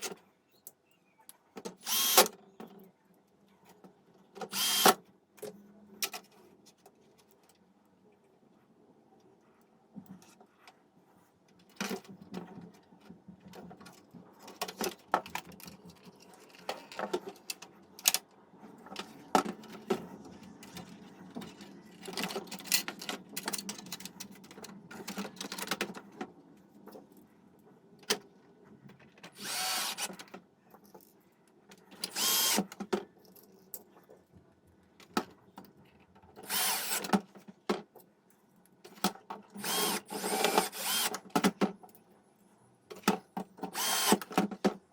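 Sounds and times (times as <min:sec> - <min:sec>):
small power tool bursts: 0:01.8 - 0:02.3, 0:04.5 - 0:05.0, 0:29.4 - 0:30.1, 0:32.1 - 0:32.6, 0:36.5 - 0:37.0, 0:39.6 - 0:41.2, 0:43.7 - 0:44.3
small parts clicking and knocking: 0:11.5 - 0:27.2.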